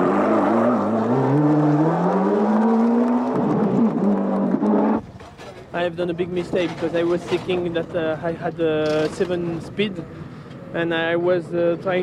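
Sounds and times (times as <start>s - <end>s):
car engine accelerating: 0.0s - 5.1s.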